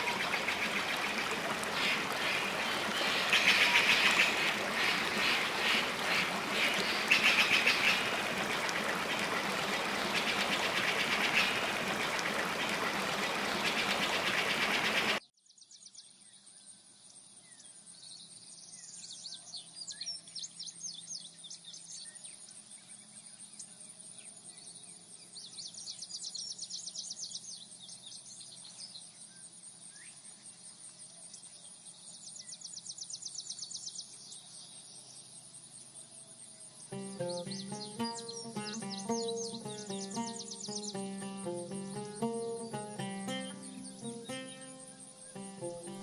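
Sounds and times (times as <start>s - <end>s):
insects chirping in rapid trills: 36.8s - 46.0s
music: 36.9s - 46.0s.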